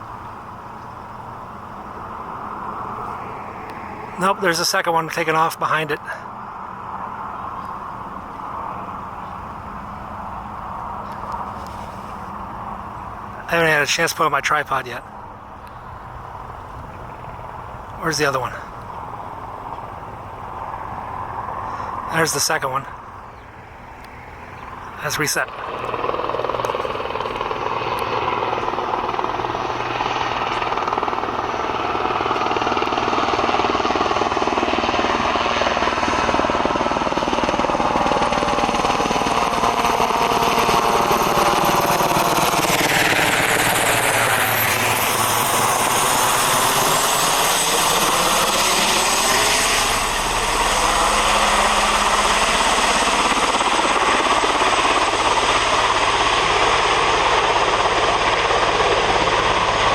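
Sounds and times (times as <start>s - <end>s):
helicopter flying low past: 0.0s - 59.9s.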